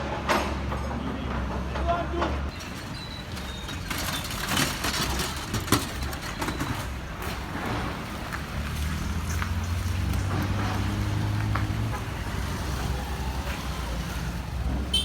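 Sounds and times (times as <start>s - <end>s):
clattering and knocks: 0.1s - 8.5s.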